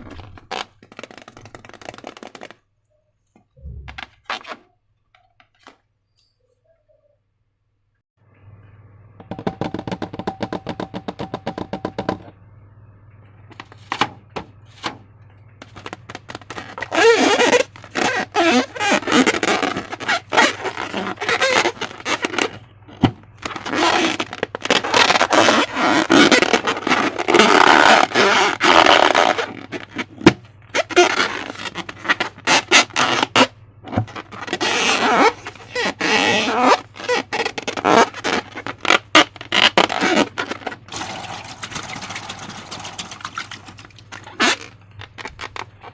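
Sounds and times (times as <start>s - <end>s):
slime squelching: 34.2s - 45.9s.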